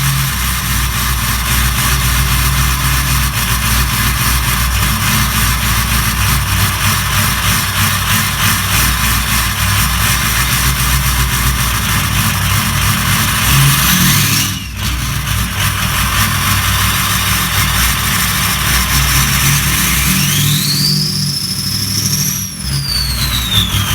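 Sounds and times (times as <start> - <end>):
diesel engine running: 0.0 - 23.9
rising engine whine: 7.8 - 23.9.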